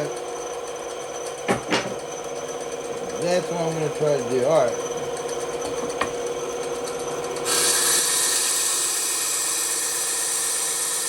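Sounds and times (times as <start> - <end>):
bandsaw running: 7.4 - 11.0
bandsaw blade sawing wood: 7.5 - 11.0.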